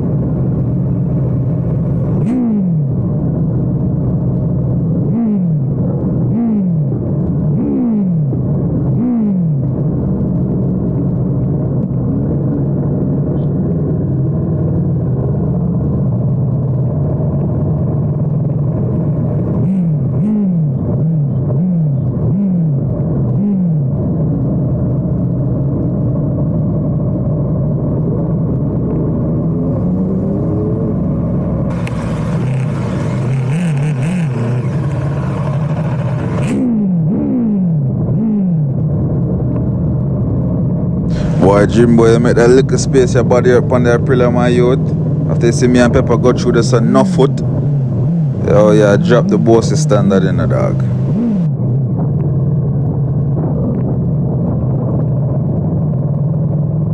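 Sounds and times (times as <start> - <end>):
motorcycle engines revving: 0.0 - 16.2, 16.8 - 24.4, 28.1 - 38.9, 40.9 - 51.7.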